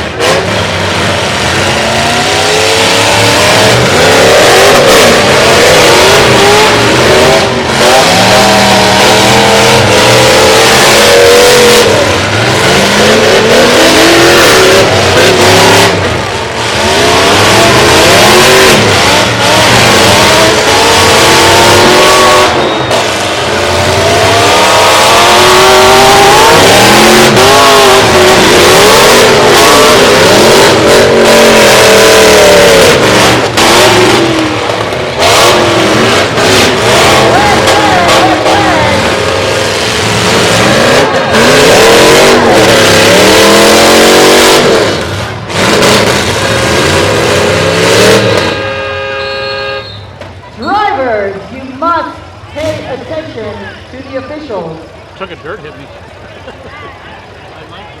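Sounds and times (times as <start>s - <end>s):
truck engines revving: 0.0s - 58.0s.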